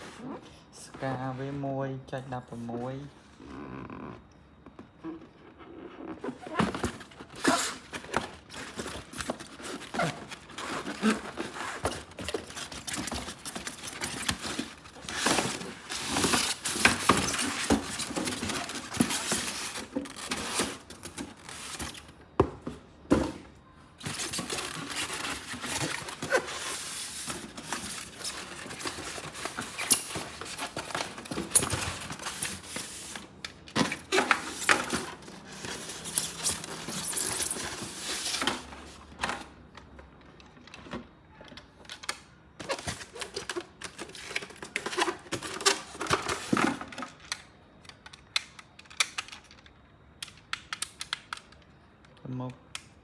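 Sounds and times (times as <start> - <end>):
plastic and cardboard crinkling: 4.6 - 39.5, 40.5 - 49.7
packaging scrapes and light knocks: 5.6 - 22.1, 24.0 - 39.4, 42.6 - 47.1.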